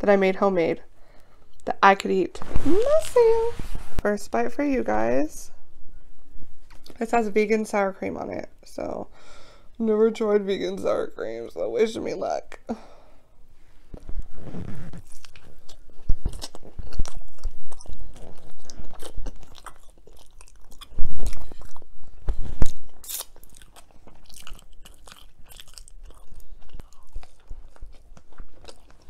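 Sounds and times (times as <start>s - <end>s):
biting and chewing crunchy food: 14.7s - 29.0s.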